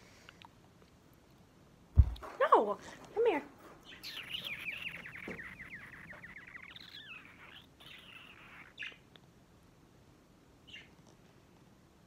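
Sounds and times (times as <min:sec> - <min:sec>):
budgerigar chirping: 0:03.8 - 0:09.1, 0:10.7 - 0:10.9.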